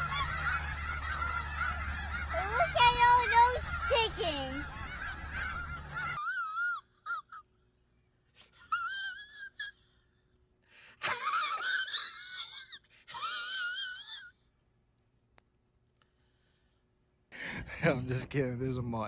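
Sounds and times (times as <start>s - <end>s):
elk bugling: 0.0s - 6.2s.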